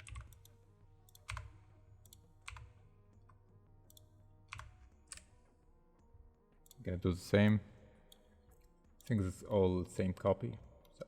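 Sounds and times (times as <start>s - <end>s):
computer keyboard clicks: 0.0s - 0.5s, 1.1s - 2.7s, 3.9s - 5.3s.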